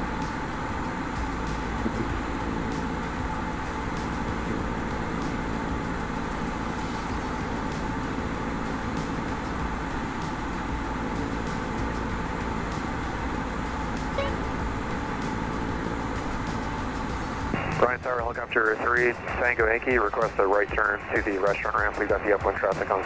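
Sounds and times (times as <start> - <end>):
light aircraft engine drone: 0.0 - 23.0
short blip: 14.2 - 14.7.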